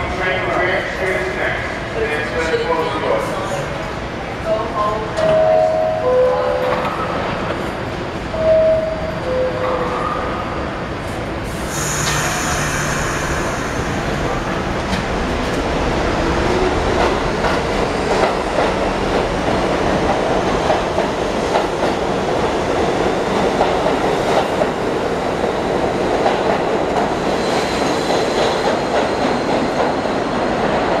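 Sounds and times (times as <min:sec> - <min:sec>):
subway train wheels clacking: 0:00.0 - 0:31.0
air hiss: 0:11.5 - 0:14.5.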